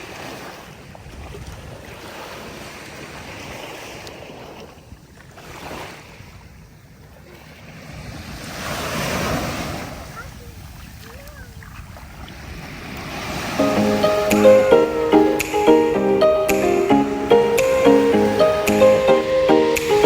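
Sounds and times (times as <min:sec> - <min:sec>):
wind buffeting the microphone: 0:00.1 - 0:07.0
sea waves washing onto shore: 0:07.8 - 0:20.0.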